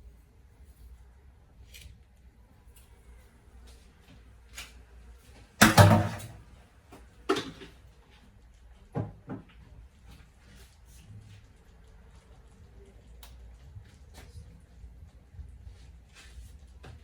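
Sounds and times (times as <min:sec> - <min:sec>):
kitchen utensils clattering: 0:05.6 - 0:06.4
loud rattling knock: 0:05.6 - 0:06.4.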